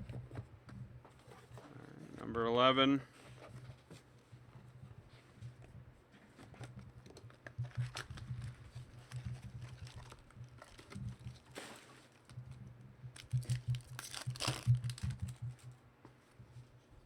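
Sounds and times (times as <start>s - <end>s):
foil wrapper tearing and crinkling: 7.6s - 11.6s, 13.2s - 15.4s.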